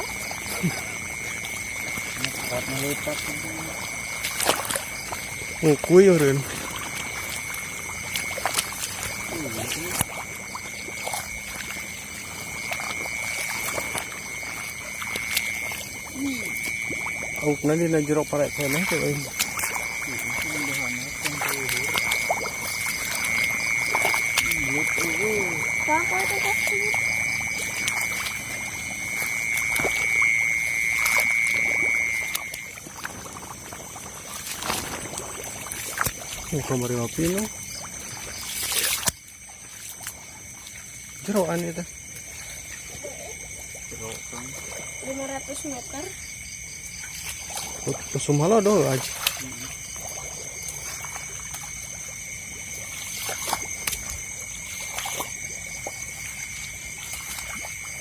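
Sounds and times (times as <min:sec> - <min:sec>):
high-pitched insect or frog trill: 0:00.0 - 0:58.0
person wading through water: 0:00.0 - 0:58.0.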